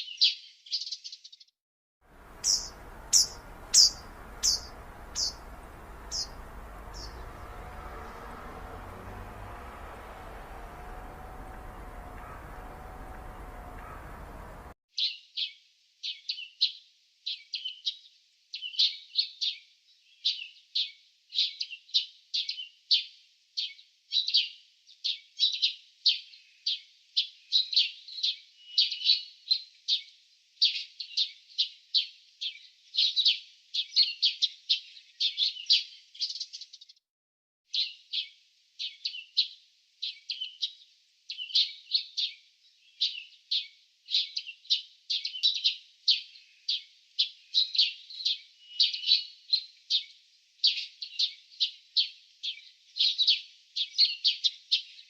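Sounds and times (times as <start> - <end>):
small birds chirping: 2.2 - 15.2, 37.7 - 55.0.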